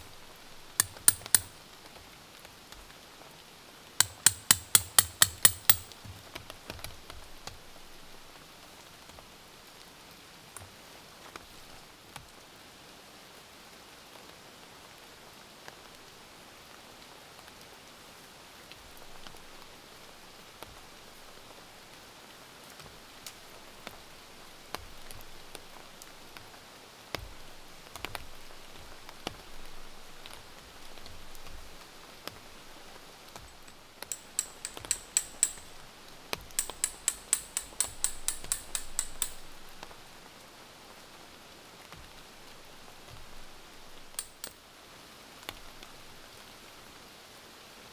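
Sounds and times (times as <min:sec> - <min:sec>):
light knocks and clicks: 0:00.8 - 0:01.6, 0:04.0 - 0:06.1, 0:33.5 - 0:35.8
rapid sharp high clicks: 0:00.8 - 0:01.6, 0:04.0 - 0:06.1, 0:33.5 - 0:40.0, 0:44.2 - 0:44.5.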